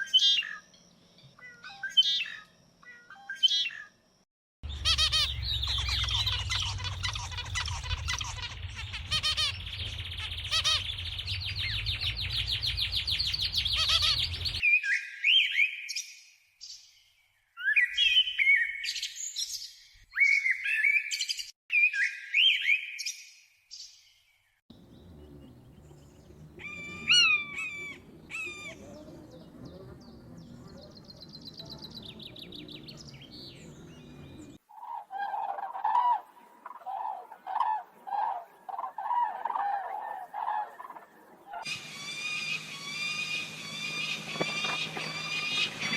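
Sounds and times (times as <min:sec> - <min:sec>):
low hum: 0:04.6 - 0:14.6, 0:24.7 - 0:34.6, 0:41.7 - 0:45.9
sharp bird calls: 0:04.6 - 0:15.9, 0:24.7 - 0:45.9
low bird call: 0:04.7 - 0:14.6, 0:24.7 - 0:45.9
rapid bird chatter: 0:04.7 - 0:14.6, 0:24.7 - 0:34.6, 0:37.5 - 0:45.9
whistled bird phrases: 0:04.7 - 0:16.0, 0:17.6 - 0:23.2, 0:24.8 - 0:34.6.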